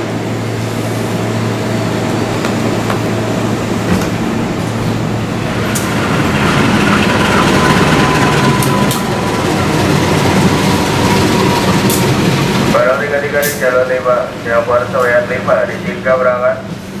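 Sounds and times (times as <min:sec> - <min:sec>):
train wheels clicking over rail joints: 0:02.0 - 0:05.0, 0:05.7 - 0:13.7.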